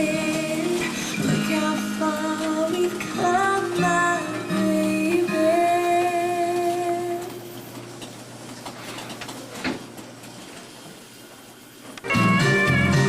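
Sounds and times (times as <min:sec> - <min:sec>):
full band with guitar: 0:12.0 - 0:13.0
pop-country song held note: 0:12.0 - 0:13.0.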